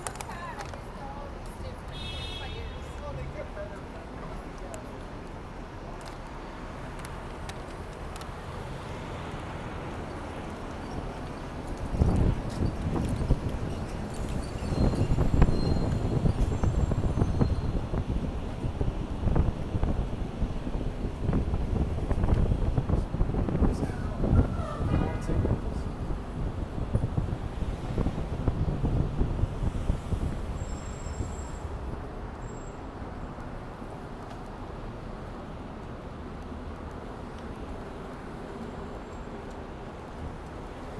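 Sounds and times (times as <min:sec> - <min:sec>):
traffic hum: 0:00.0 - 0:40.9
wind buffeting microphone: 0:10.6 - 0:33.9.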